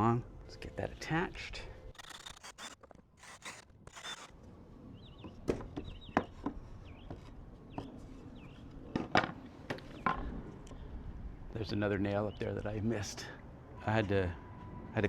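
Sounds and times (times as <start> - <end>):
bird chirping: 4.9 - 8.6.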